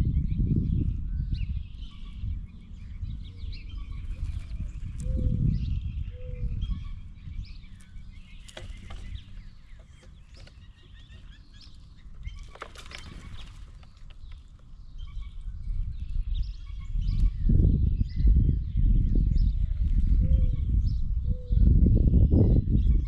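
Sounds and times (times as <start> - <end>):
faint bird chirping: 0.0 - 23.0
bird wings fluttering: 12.2 - 14.6.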